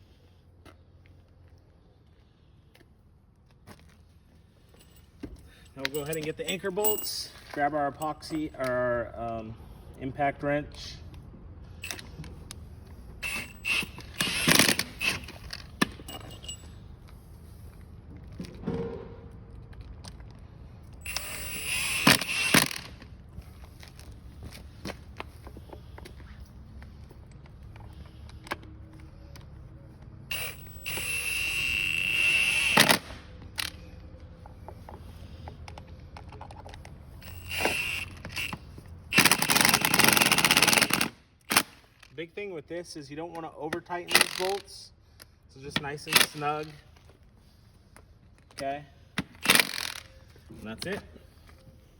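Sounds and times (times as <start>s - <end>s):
metallic clinks and scrapes: 4.5s - 8.7s, 13.2s - 17.3s
tools clattering: 4.7s - 8.5s, 13.2s - 16.8s
impact wrench whirring: 13.2s - 16.6s, 21.0s - 23.0s, 30.3s - 33.8s, 37.2s - 41.8s, 44.1s - 44.7s, 49.2s - 50.1s
impact wrench hammering: 37.2s - 41.7s, 44.1s - 44.6s.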